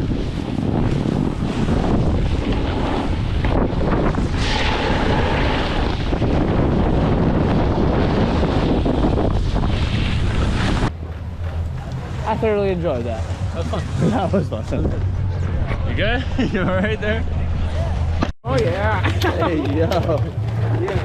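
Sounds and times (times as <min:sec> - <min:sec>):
wind buffeting microphone: 0:00.0 - 0:16.6.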